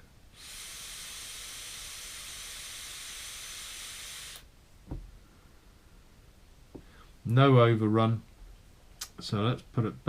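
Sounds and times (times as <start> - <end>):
air hissing through vape coil: 0.3 - 4.5.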